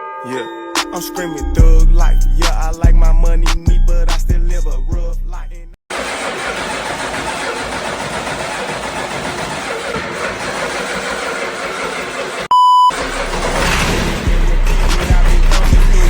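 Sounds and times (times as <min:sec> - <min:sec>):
diesel engine running: 0:01.6 - 0:16.0
short electronic beep: 0:12.5 - 0:13.0.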